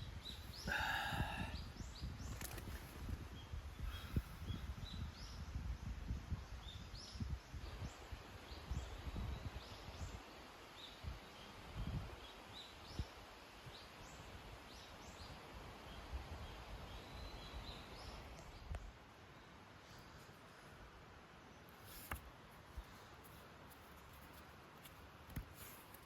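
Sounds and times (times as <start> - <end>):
birds chirping: 0.0 - 2.7.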